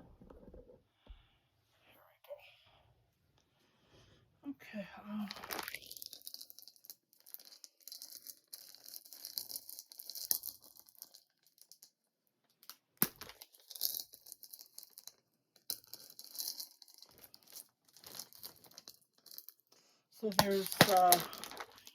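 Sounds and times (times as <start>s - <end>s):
plastic bag crinkling: 5.3s - 6.0s, 20.3s - 21.9s.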